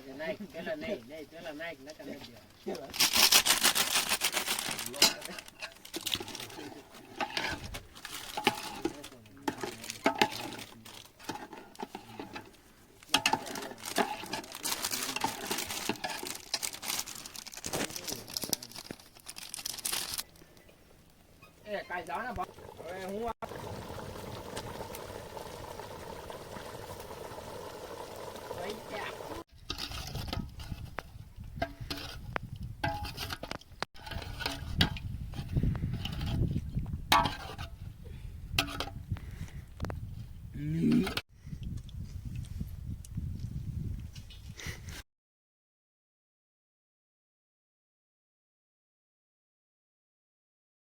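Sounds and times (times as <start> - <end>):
rustling: 2.3 - 22.2
metal utensils clinking on cookware: 4.7 - 12.5, 13.1 - 16.6.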